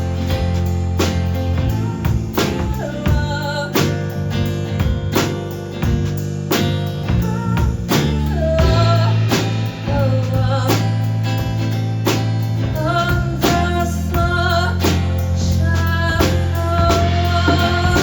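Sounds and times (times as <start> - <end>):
bass: 0.0 - 18.0
drums: 0.0 - 18.0
guitar: 0.0 - 18.0
person singing: 1.6 - 4.2, 7.1 - 11.1, 12.6 - 18.0.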